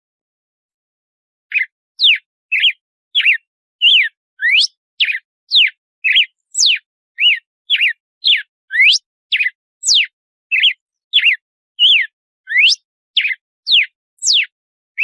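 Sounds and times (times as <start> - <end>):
bird singing whistled notes: 1.5 - 15.0.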